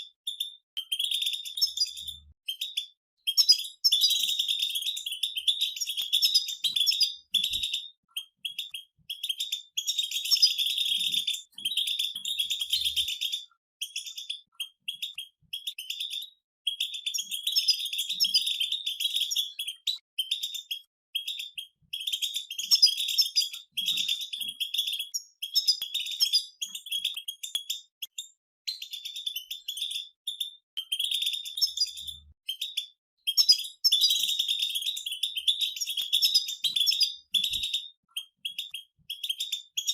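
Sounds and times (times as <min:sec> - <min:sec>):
goldfinches twittering: 0:00.3 - 0:16.2, 0:21.2 - 0:27.5.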